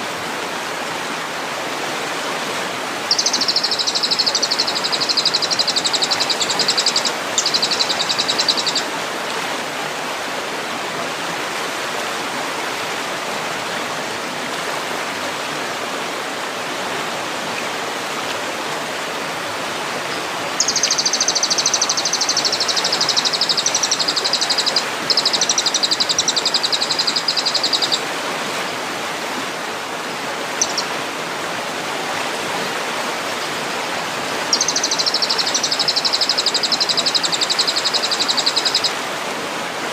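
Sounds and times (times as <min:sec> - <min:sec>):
songbird buzzing trills: 0:03.1 - 0:08.9, 0:20.1 - 0:28.0, 0:30.6 - 0:30.9, 0:34.5 - 0:38.9.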